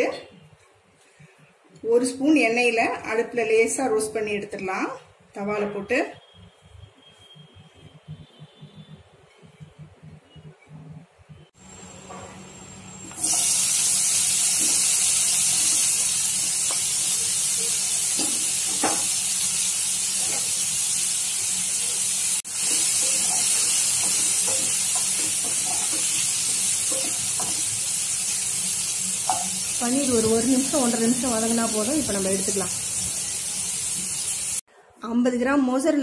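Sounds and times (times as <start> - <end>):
food sizzling in hot oil: 11.6 - 34.7.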